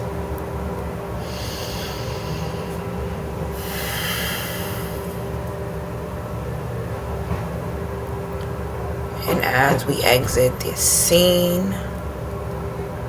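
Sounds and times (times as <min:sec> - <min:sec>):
steady low hum: 0:00.0 - 0:13.0
airy breaths close to microphone: 0:01.2 - 0:05.5.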